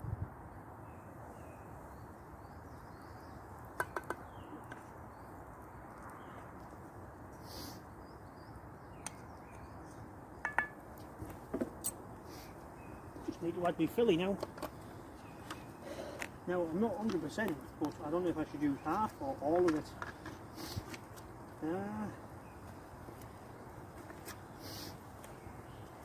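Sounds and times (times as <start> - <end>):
small birds chirping: 0.8 - 26.0
steady background hiss: 7.2 - 26.0.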